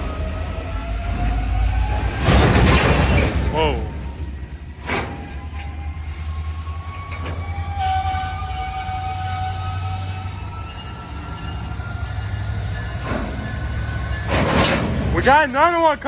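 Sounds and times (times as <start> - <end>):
wheels squealing: 0.0 - 15.6
train rumbling on rails: 0.0 - 16.0.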